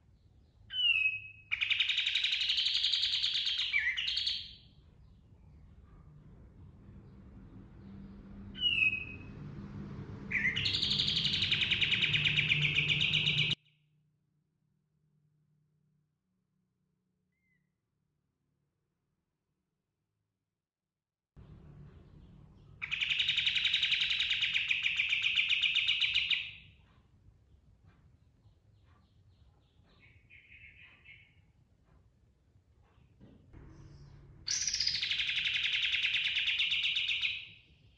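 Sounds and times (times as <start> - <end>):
faint bird chirps: 0.0 - 6.2, 10.3 - 13.8, 17.3 - 17.8, 21.8 - 31.6, 32.8 - 37.9
songbird trilling: 0.7 - 4.7, 10.3 - 13.6, 22.8 - 26.6, 34.5 - 37.6.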